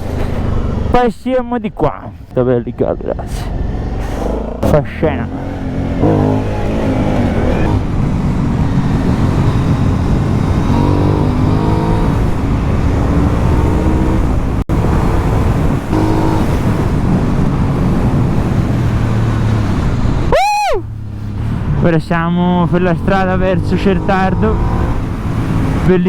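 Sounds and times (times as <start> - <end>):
wind rush: 3.2 - 21.8
motorcycle engine revving: 3.3 - 26.0.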